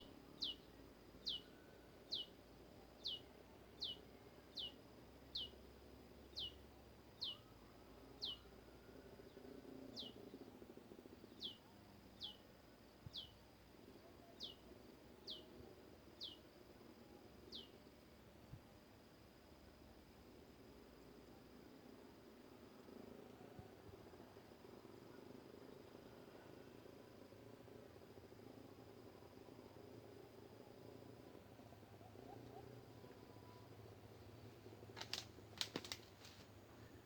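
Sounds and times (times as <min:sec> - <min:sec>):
warbler calling: 0:00.0 - 0:02.4, 0:03.0 - 0:05.6, 0:06.2 - 0:07.6, 0:08.2 - 0:08.5, 0:09.2 - 0:10.5, 0:11.2 - 0:12.4, 0:13.1 - 0:13.4, 0:15.2 - 0:15.5, 0:16.2 - 0:16.4.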